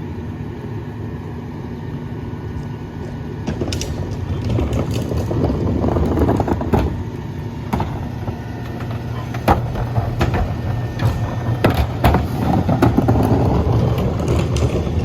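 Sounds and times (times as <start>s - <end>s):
garbage packer clanking: 3.4s - 15.0s.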